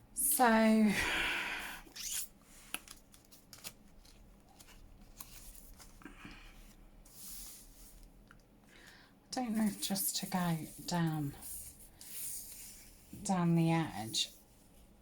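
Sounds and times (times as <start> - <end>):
paper rustling: 2.6 - 13.1.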